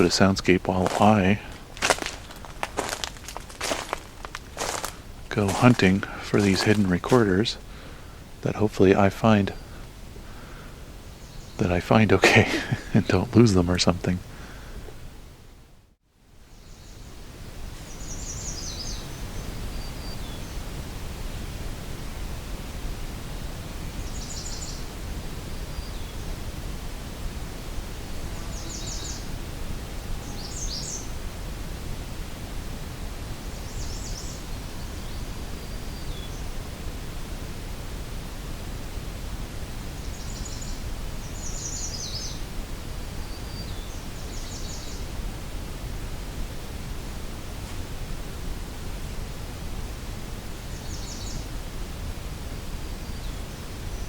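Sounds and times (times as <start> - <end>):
low background rush: 0.0 - 54.0
songbird trilling: 17.9 - 20.6, 24.0 - 24.9, 28.3 - 29.3, 30.2 - 31.1, 40.0 - 42.5, 50.7 - 51.4.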